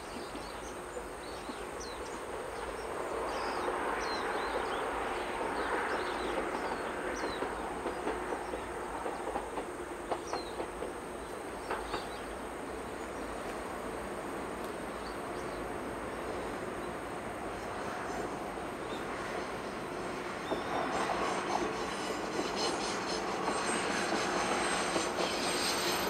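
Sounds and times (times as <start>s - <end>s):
train rumbling: 0.0s - 26.0s
rail clicks: 3.6s - 13.7s, 19.0s - 26.0s.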